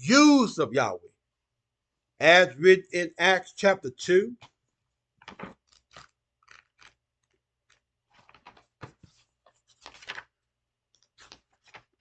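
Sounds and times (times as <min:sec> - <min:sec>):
paper pages rustling: 0:04.4 - 0:12.0.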